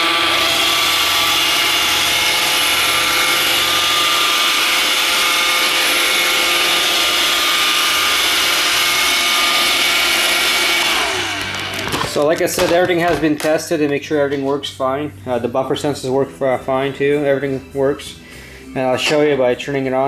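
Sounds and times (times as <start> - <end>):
robot vacuum whirring: 0.0 - 13.5.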